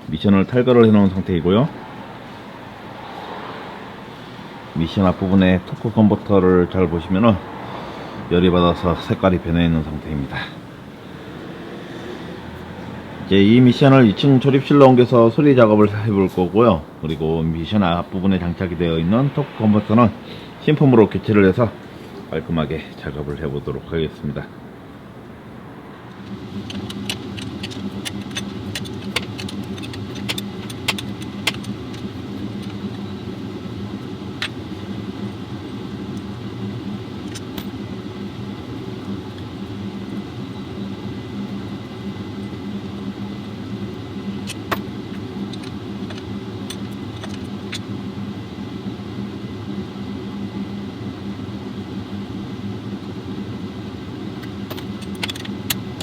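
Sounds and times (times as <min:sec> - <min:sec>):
low mechanical hum: 0:00.0 - 0:56.0
sharp clicks: 0:26.1 - 0:32.0.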